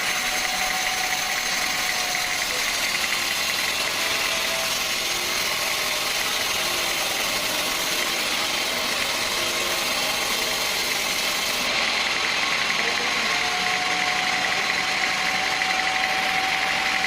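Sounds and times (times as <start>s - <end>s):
sawmill machinery running: 0.0s - 17.0s.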